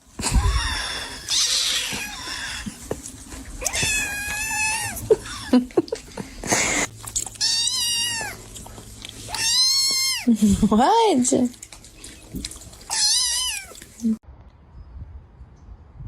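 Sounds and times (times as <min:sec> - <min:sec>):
cat meowing: 0:00.3 - 0:02.8, 0:03.6 - 0:05.5, 0:07.3 - 0:08.6, 0:09.3 - 0:10.3, 0:12.8 - 0:14.1.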